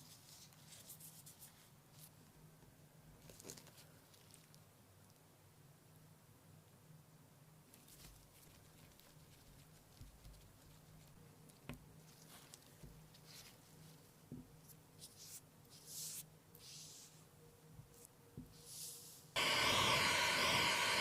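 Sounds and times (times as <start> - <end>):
scratching and handling noises: 0.0 - 2.2, 3.2 - 5.2, 7.7 - 17.3.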